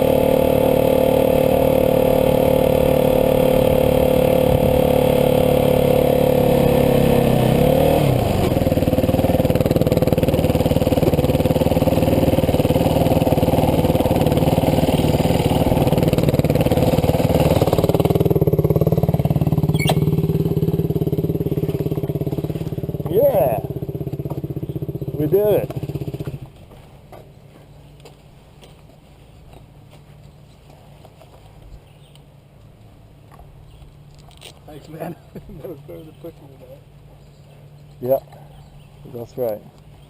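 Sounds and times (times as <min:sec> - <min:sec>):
dirt bike engine under load: 0:06.8 - 0:27.8.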